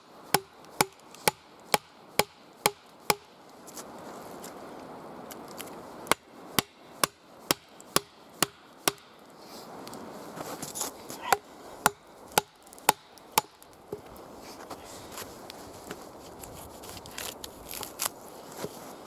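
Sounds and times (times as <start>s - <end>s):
hand tool striking wood: 0.3s - 3.3s, 6.1s - 9.2s, 11.2s - 14.1s.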